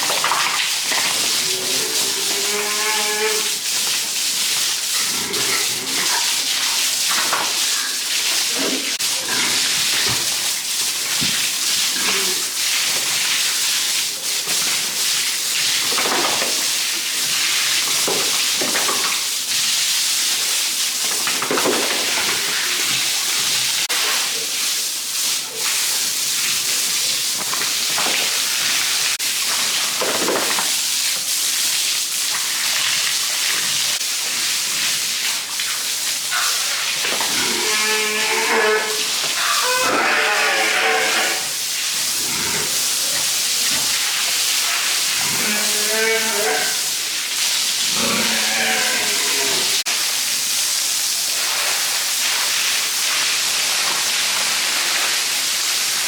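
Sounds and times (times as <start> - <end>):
farm animals calling: 37.4 - 41.6.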